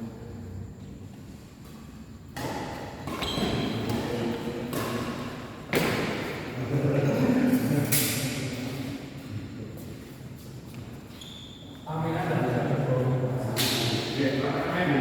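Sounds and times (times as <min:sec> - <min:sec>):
racket hitting shuttlecock: 0:02.3 - 0:06.4.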